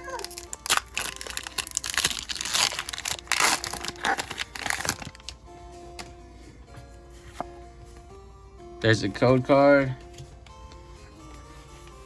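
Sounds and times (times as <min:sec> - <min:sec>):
foil wrapper crinkling: 0:00.0 - 0:05.4
background music: 0:00.0 - 0:12.0.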